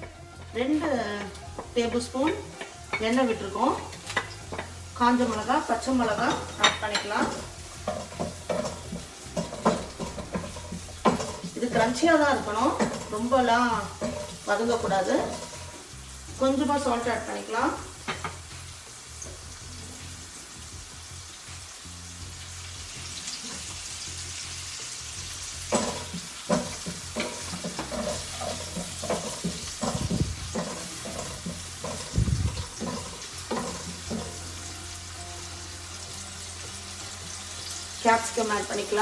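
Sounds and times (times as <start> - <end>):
onions sizzling in oil: 0.0 - 39.0
wooden spatula scraping a pan: 0.6 - 15.9, 25.7 - 34.6.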